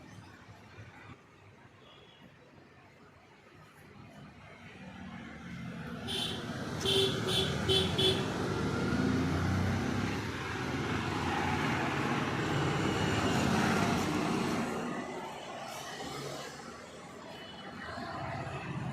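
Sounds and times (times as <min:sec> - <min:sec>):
vehicle passing: 0:04.8 - 0:15.1.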